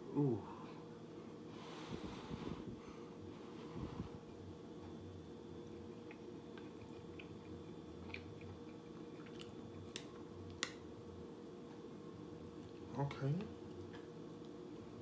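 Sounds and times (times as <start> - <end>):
person chewing: 5.7 - 10.8.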